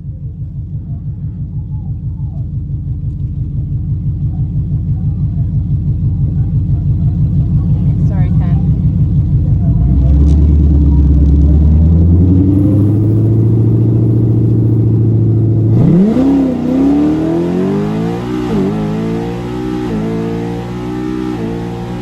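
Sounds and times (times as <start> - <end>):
car engine revving and accelerating: 9.2 - 22.0.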